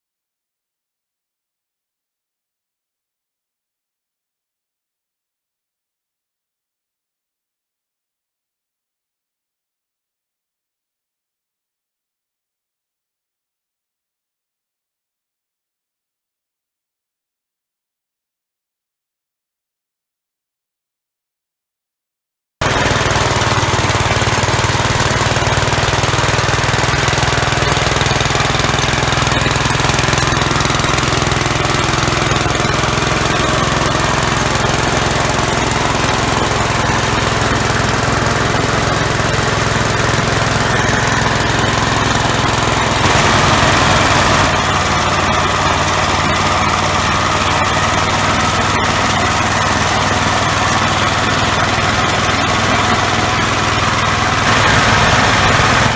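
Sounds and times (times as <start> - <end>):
single-cylinder engine running: 22.6 - 55.9.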